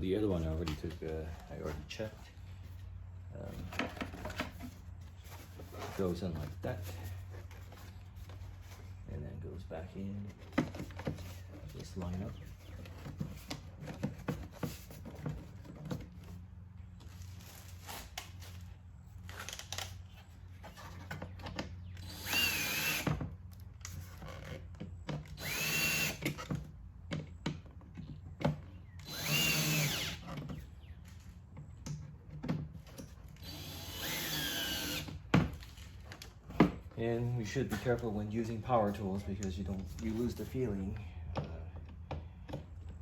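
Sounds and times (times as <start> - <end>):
power screwdriver motor whine: 22.0 - 23.2, 25.3 - 26.4, 29.0 - 30.3, 33.4 - 35.2.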